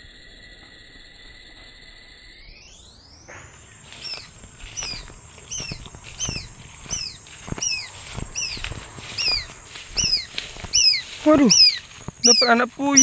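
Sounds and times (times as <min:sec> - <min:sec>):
quail chick peeping: 0:03.3 - 0:13.0
rustling: 0:03.4 - 0:13.0.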